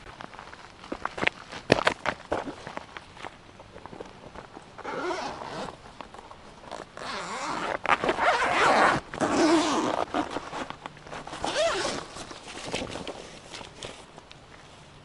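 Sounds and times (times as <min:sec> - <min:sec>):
zipper being pulled: 0:04.8 - 0:05.8, 0:06.7 - 0:12.3.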